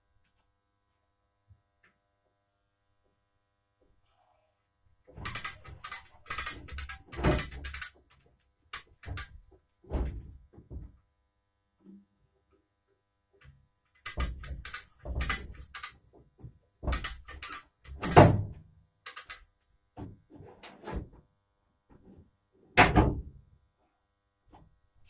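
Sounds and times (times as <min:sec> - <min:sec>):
metal clanks and knocks: 0:05.2 - 0:08.2, 0:08.8 - 0:09.4, 0:14.1 - 0:15.9, 0:16.9 - 0:18.5, 0:19.1 - 0:19.4.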